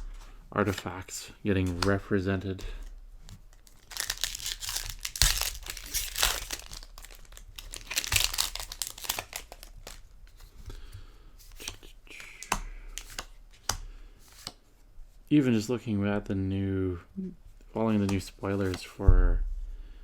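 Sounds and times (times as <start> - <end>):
foil wrapper tearing and crinkling: 3.5 - 10.1.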